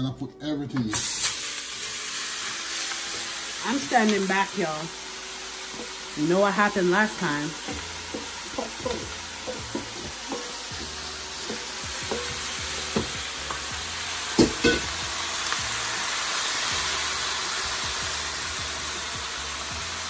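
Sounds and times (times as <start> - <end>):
food sizzling in a hot pan: 0.9 - 20.0
wooden spoon scraping and tapping: 7.6 - 13.6.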